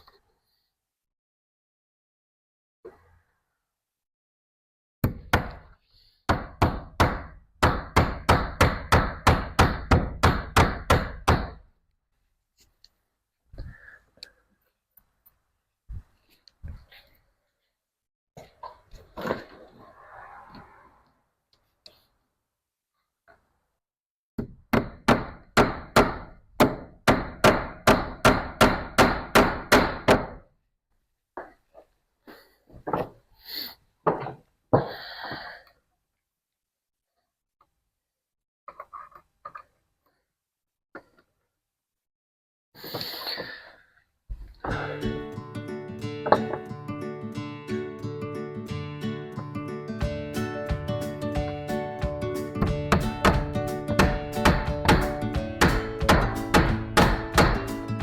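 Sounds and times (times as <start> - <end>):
hammer striking staples into wood: 6.3 - 11.6, 24.4 - 30.4, 52.6 - 57.7.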